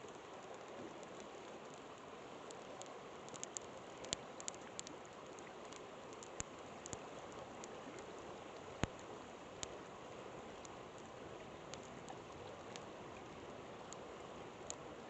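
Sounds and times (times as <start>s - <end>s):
campfire crackling and popping: 0.0s - 9.8s
river flowing: 0.0s - 15.0s.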